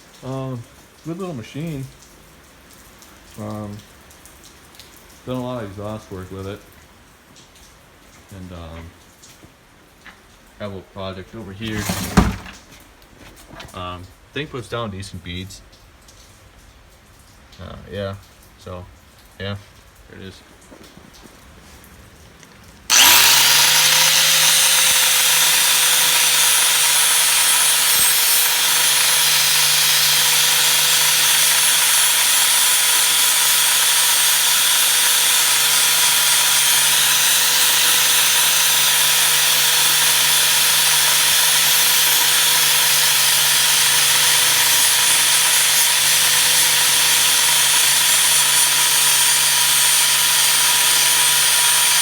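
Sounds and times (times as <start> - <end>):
angle grinder running: 11.7 - 12.6, 22.9 - 52.0.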